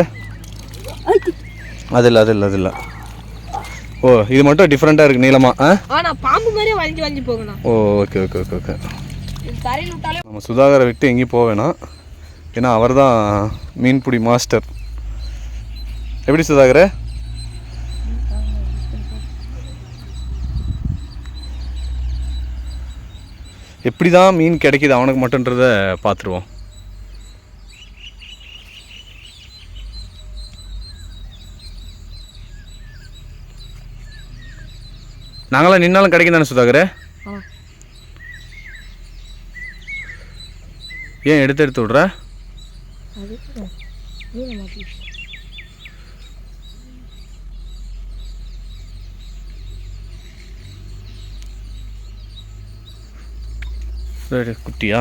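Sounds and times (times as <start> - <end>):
small birds chirping: 0.0 - 55.0
small ticks: 28.6 - 35.5, 37.5 - 39.6, 48.2 - 54.1.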